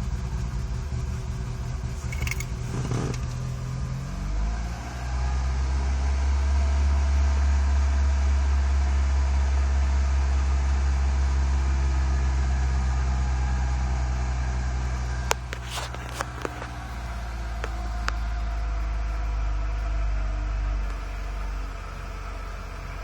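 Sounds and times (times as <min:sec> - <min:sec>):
car engine idling roughly: 0:00.0 - 0:05.4, 0:15.0 - 0:20.0, 0:20.8 - 0:23.0
sharp clicks: 0:15.3 - 0:18.9.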